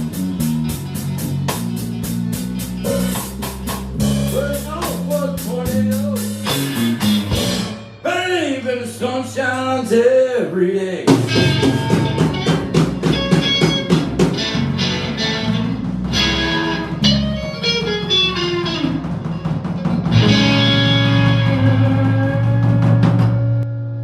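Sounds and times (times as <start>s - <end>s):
electric blues band playing: 0.0s - 10.2s, 11.0s - 24.0s
electric guitar lines: 11.1s - 24.0s.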